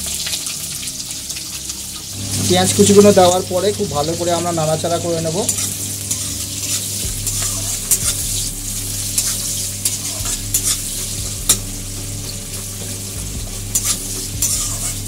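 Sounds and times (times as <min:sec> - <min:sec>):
onions sizzling in oil: 0:00.0 - 0:15.0
metal spatula scraping a pan: 0:05.2 - 0:15.0.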